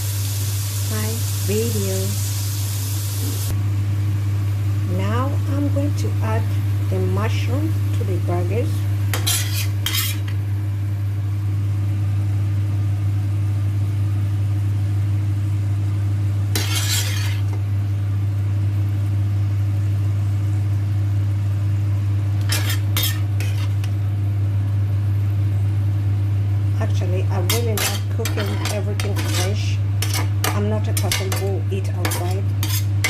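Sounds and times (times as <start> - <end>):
food sizzling in a frying pan: 0.0 - 3.6, 4.5 - 12.3, 16.2 - 33.0
steady low hum: 3.0 - 33.0
utensil clattering against pan: 27.5 - 32.9.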